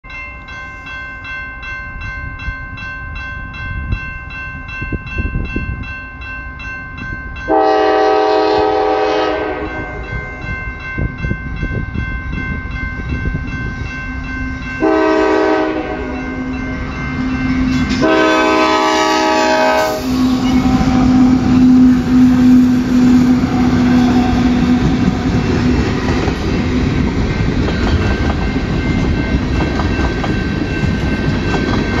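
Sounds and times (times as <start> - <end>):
crossing bell ringing: 0.0 - 32.0
freight train rumbling past: 0.1 - 32.0
locomotive horn blasts: 7.5 - 10.4, 14.8 - 16.6, 17.5 - 25.4.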